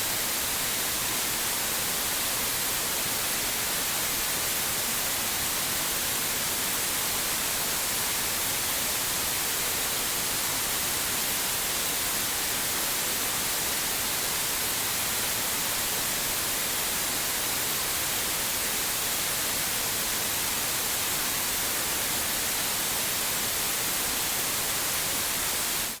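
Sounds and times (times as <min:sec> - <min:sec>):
white noise hiss: 0:00.0 - 0:26.0.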